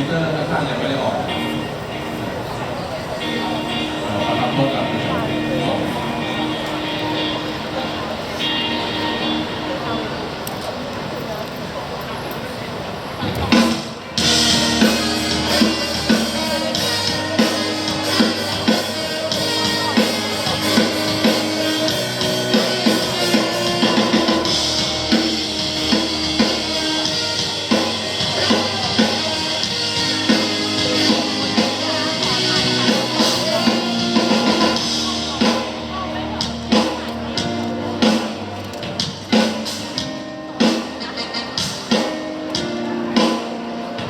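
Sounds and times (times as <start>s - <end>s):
live band playing: 0.0s - 11.1s, 13.2s - 44.0s
drum kit steady beat: 13.4s - 44.0s.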